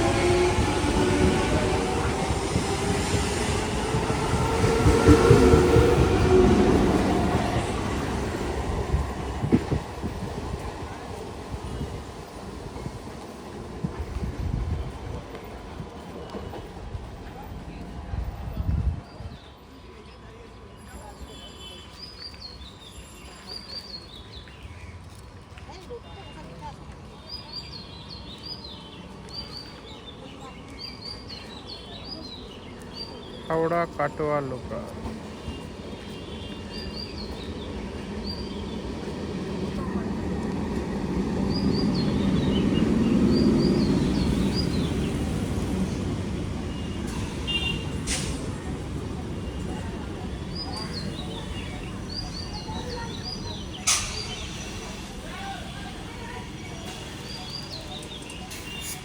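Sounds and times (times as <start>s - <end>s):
train passing: 0.0s - 21.2s, 28.4s - 59.0s
small birds chirping: 35.3s - 59.0s.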